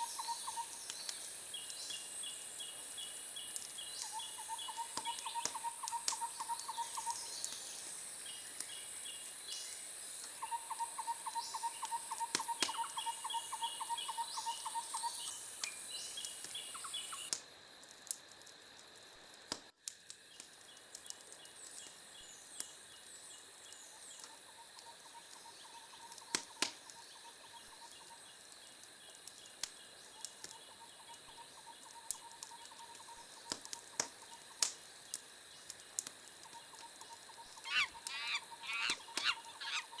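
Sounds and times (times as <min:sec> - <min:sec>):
steady high hiss: 0:00.0 - 0:24.3
small animals trilling and chirping: 0:36.7 - 0:40.0.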